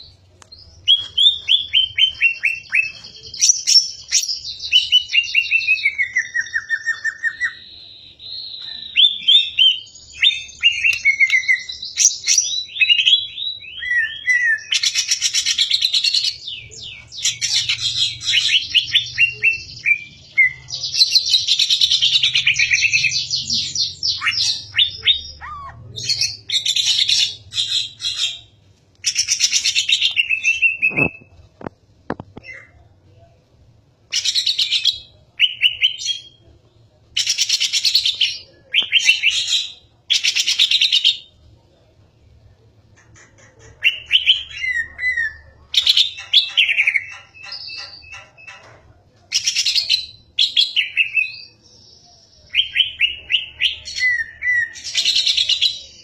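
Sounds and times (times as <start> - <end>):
songbird singing: 0.0 - 33.2.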